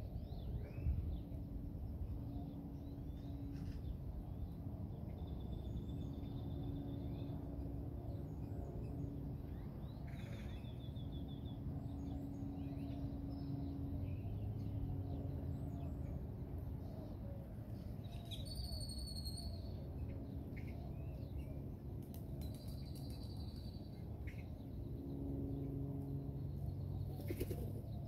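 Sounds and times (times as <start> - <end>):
low rumble and hum: 0.0 - 28.0.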